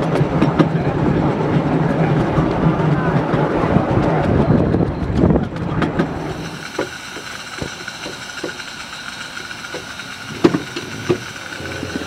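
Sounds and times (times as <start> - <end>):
clicks over rail joints: 0.0 - 12.0
miniature train running on track: 0.0 - 12.0.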